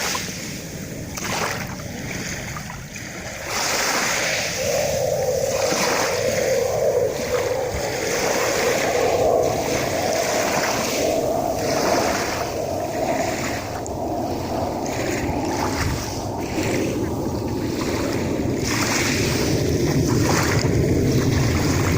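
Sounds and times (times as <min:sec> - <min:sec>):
sea waves washing in: 0:00.0 - 0:21.9
wind on microphone: 0:00.0 - 0:21.9
steady hum: 0:04.5 - 0:21.9.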